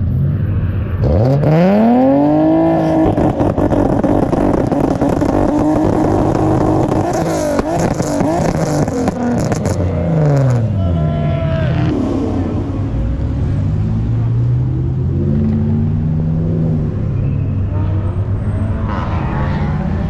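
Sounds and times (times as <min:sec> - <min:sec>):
car engine revving: 0:00.0 - 0:20.0
exhaust cracks: 0:02.1 - 0:10.7.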